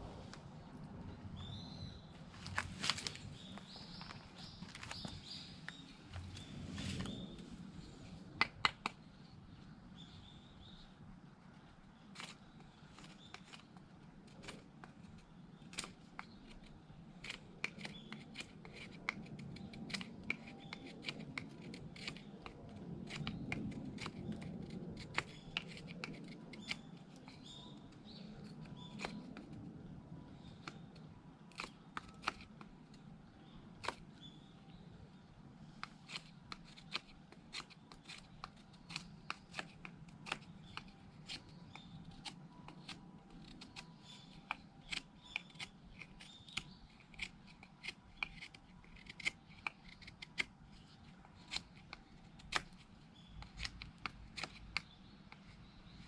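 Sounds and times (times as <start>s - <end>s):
knife scraping wooden stick: 15.7s - 29.6s, 31.5s - 32.7s, 35.7s - 56.0s.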